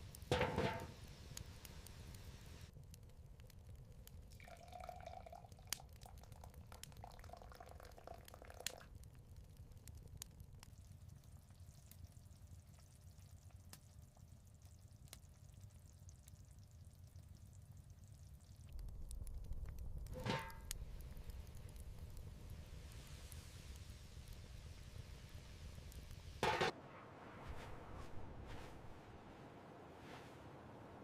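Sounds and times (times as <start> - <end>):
liquid being poured: 4.3 - 8.9.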